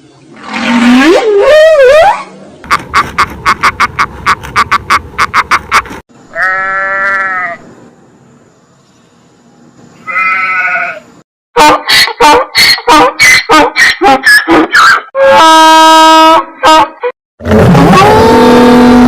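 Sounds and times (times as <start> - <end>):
farm animal bleating: 6.3 - 7.6, 10.0 - 11.1.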